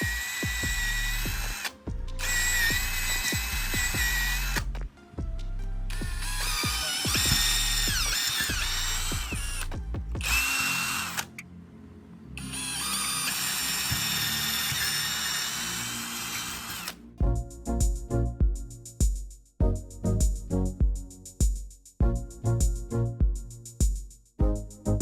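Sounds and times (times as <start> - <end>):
electric power drill whine: 0.0 - 4.7, 6.0 - 11.4, 12.4 - 17.0
background music with a beat: 0.0 - 11.2, 16.8 - 25.0.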